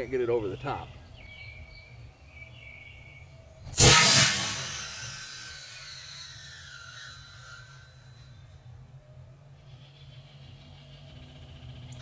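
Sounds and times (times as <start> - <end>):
compressed air launcher blast: 3.7 - 8.5.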